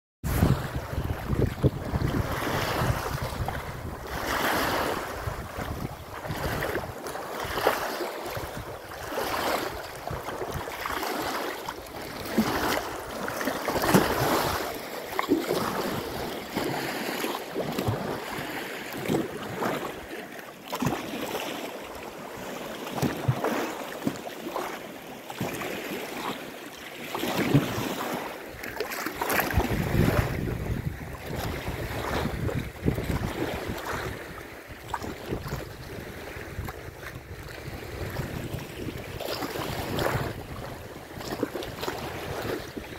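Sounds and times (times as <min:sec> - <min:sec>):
wind buffeting microphone: 0:00.2 - 0:07.7, 0:29.2 - 0:42.9
waves washing onto shore: 0:00.2 - 0:42.9.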